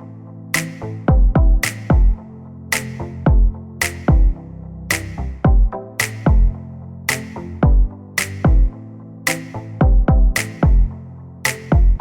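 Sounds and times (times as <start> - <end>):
electronic music with heavy beat: 0.0 - 12.0.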